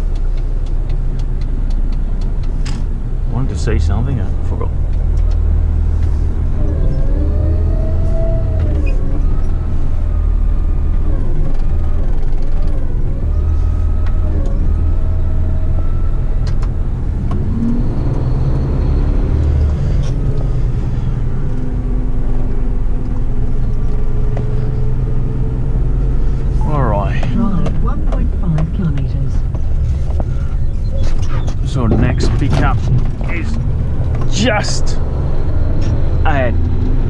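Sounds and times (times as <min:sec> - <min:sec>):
road noise: 0:00.0 - 0:37.0
truck diesel engine from cab: 0:00.0 - 0:37.0.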